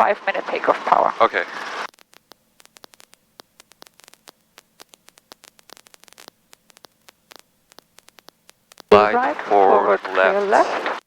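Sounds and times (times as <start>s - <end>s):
crackling static clicks: 0.0s - 11.0s
quiet hiss: 0.0s - 11.0s.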